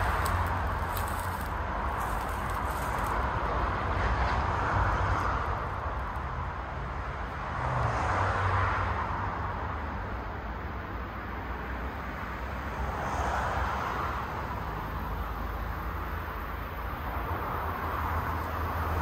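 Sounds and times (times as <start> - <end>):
train rolling past: 0.0 - 6.1.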